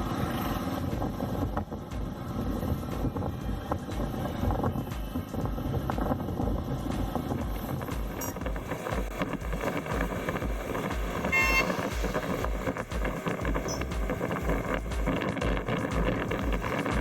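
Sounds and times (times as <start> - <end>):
motorcycle riding: 0.0 - 17.0
wind buffeting microphone: 0.0 - 17.0
vehicle horn beep: 11.2 - 12.4.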